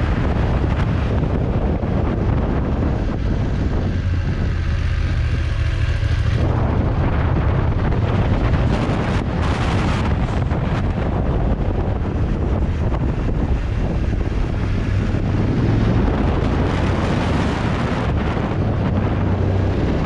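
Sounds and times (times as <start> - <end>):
motorcycle engine drone: 0.0 - 20.0
wind rushing over microphone: 0.0 - 20.0.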